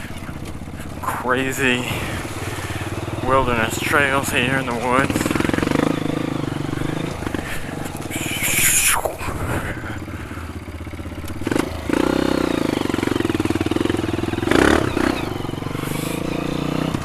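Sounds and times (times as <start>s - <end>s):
bike clattering over trail: 0.0s - 8.3s
dirt bike engine revving: 0.0s - 17.0s.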